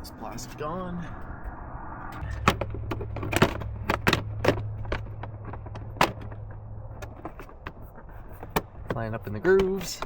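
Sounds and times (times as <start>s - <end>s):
plastic panel clicks and knocks: 2.4s - 7.8s.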